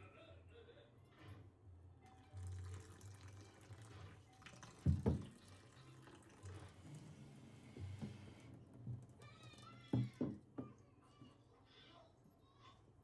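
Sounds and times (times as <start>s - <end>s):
tap running into sink: 4.5s - 5.4s.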